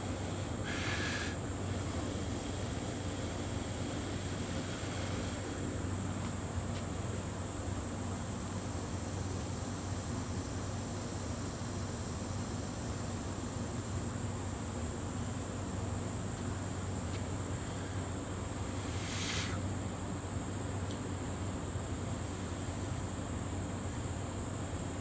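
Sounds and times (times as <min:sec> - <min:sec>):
insects trilling: 0:00.0 - 0:25.0
low background hum: 0:00.0 - 0:25.0.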